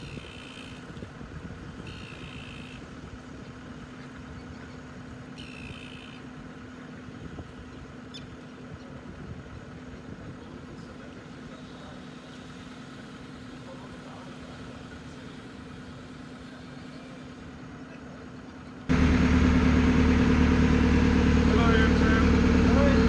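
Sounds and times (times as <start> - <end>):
engine idling: 1.9 - 23.0.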